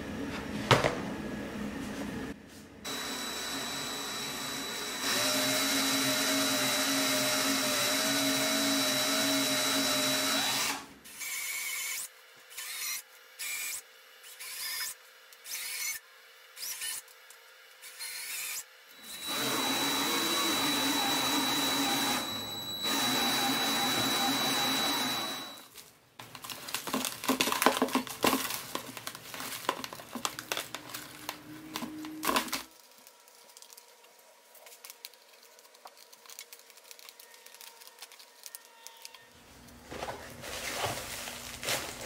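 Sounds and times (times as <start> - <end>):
cordless drill motor running: 2.9 - 13.7, 18.0 - 25.7.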